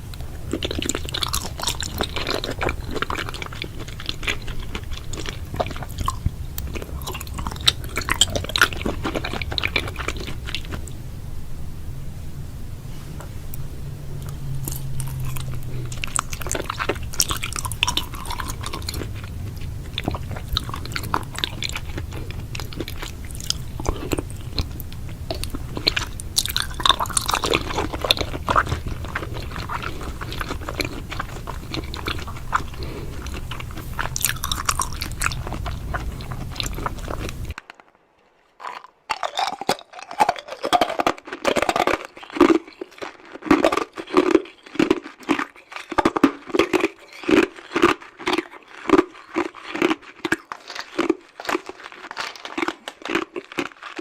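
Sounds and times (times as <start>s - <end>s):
chewing crisp food: 0.0s - 11.2s, 13.0s - 37.8s, 38.5s - 54.0s
low steady hum: 0.0s - 38.1s.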